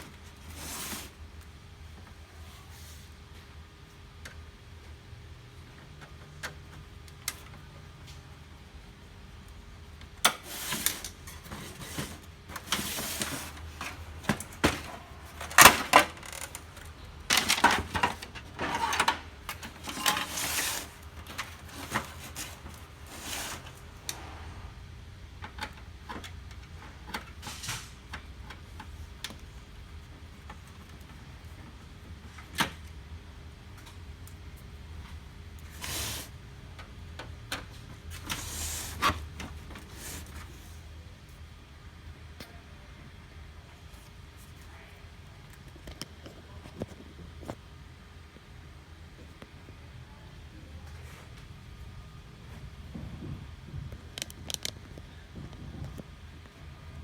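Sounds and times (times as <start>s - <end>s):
scraping rustles: 0.2s - 1.2s, 10.4s - 24.7s
plastic parts clicking: 54.1s - 54.9s.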